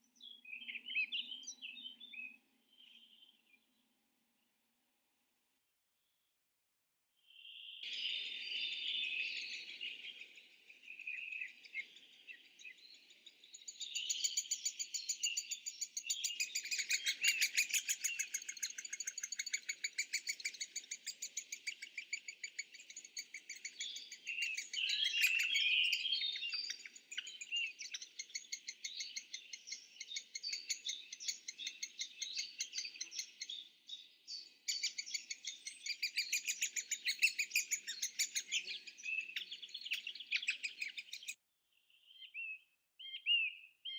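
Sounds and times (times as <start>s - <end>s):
many birds chirping: 0.0s - 3.7s, 7.4s - 43.9s.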